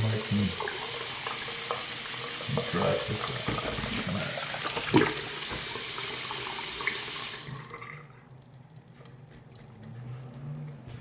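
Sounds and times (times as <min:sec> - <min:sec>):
tap water running into sink: 0:00.0 - 0:08.1.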